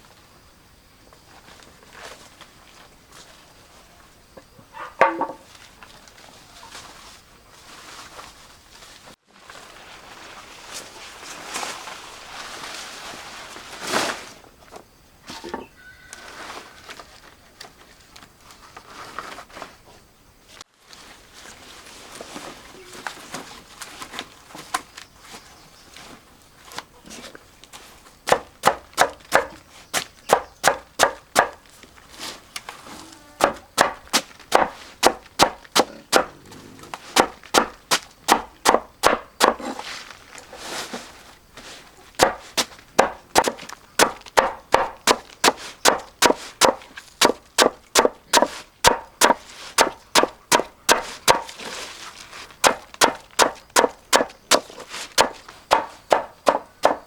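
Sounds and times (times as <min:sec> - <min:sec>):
knife chopping on wooden board: 0:28.3 - 0:29.6, 0:30.3 - 0:31.6, 0:33.4 - 0:36.3, 0:37.2 - 0:39.7, 0:42.2 - 0:51.6, 0:52.6 - 0:57.0.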